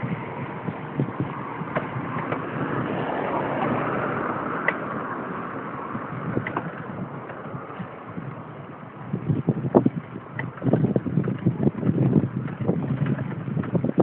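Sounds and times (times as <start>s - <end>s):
bike rattling over bumps: 0.0s - 14.0s
wind on microphone: 0.0s - 14.0s.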